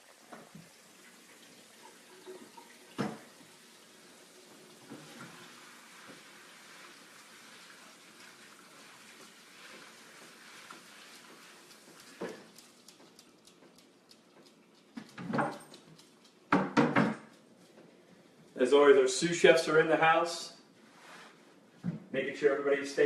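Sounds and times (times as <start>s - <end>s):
kitchen tap running: 0.0s - 12.6s.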